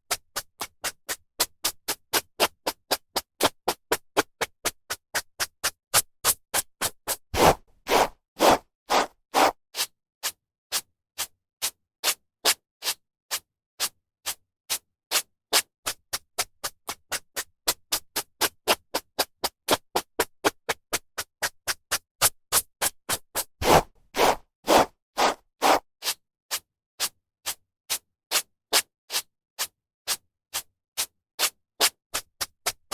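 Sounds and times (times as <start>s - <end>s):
hairbrush brushing hair: 23.6s - 25.8s.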